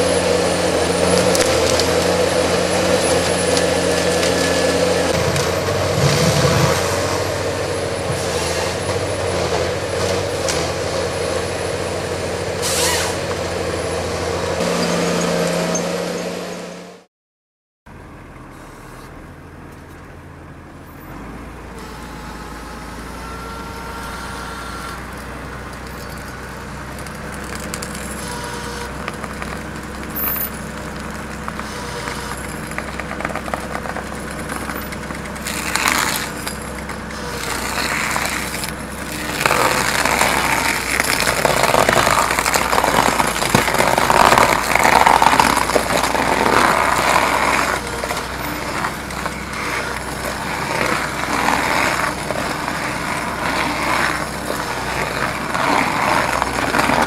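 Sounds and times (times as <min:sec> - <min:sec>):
blade crunching tree stump: 0:00.0 - 0:11.0, 0:23.2 - 0:57.0
excavator engine running: 0:00.0 - 0:17.1, 0:17.9 - 0:57.0
harvester diesel engine running: 0:00.0 - 0:17.1, 0:17.9 - 0:57.0.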